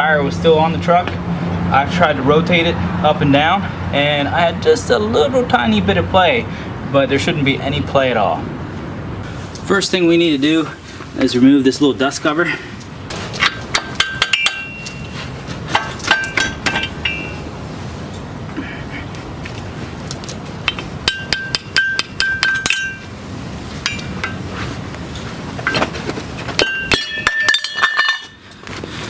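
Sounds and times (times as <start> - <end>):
metal tapping and clinking: 13.4 - 17.4, 20.1 - 23.1, 23.8 - 24.4, 25.6 - 28.7.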